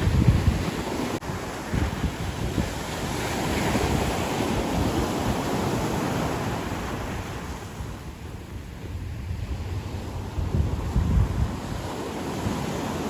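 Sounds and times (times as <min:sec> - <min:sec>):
ocean surf washing onto beach: 0:00.0 - 0:13.0
wind buffeting microphone: 0:00.0 - 0:13.0.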